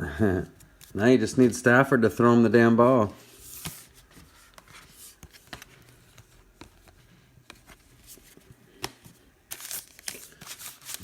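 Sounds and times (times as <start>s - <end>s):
trading cards clicking and rustling: 3.4s - 11.0s.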